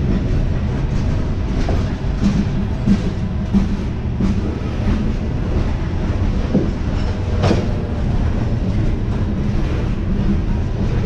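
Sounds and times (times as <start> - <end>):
clickety-clack over rail joints: 0.0 - 11.0
train wheels rumbling on rails: 0.0 - 11.0.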